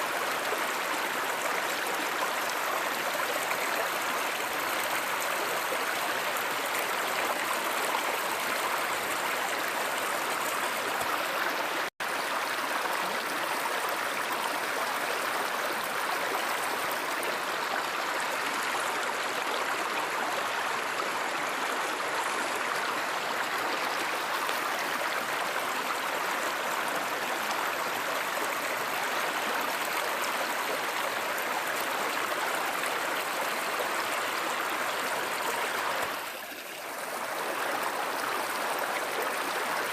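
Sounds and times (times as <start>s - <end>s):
stream rushing and babbling: 0.0s - 39.9s.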